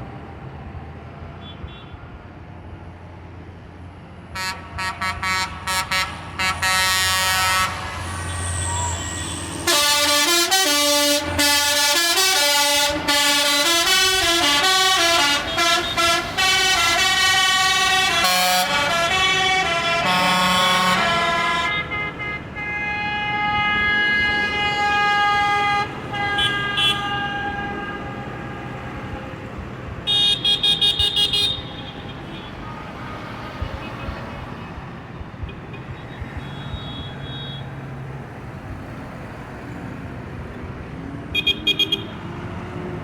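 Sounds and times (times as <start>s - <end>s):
held horn tones: 4.4s - 28.8s
musical vehicle horn tune: 4.4s - 29.1s, 30.0s - 32.8s, 35.9s - 37.7s.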